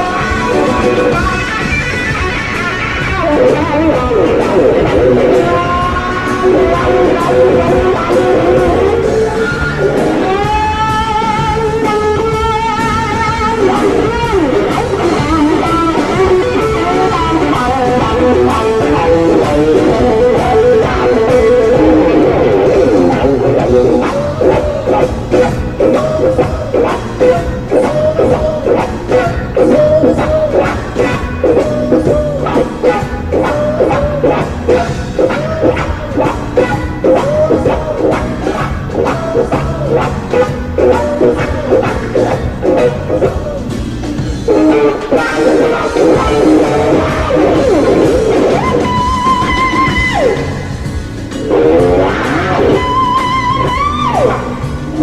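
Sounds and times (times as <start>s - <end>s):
band playing: 0.0s - 55.0s
drums: 0.0s - 55.0s
electric blues guitar solo: 0.0s - 55.0s.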